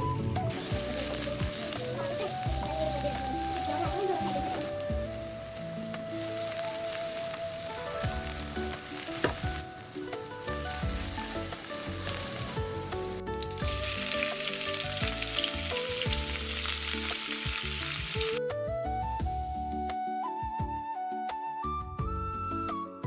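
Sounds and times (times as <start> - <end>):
food sizzling in a pan: 0.4 - 18.4.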